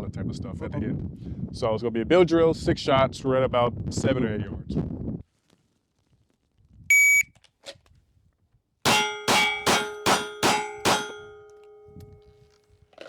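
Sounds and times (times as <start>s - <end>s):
shot timer start beep: 6.9s - 7.3s.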